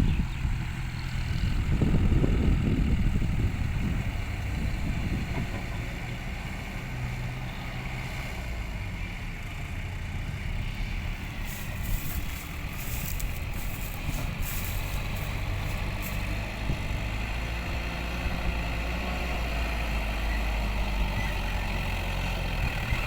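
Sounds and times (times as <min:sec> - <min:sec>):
heavy diesel engine rumbling: 0:00.0 - 0:23.0
short crackling noises: 0:11.4 - 0:16.3.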